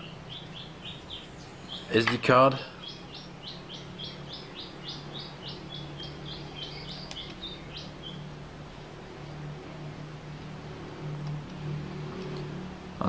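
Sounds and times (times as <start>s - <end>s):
songbird singing high notes: 0.0s - 8.3s.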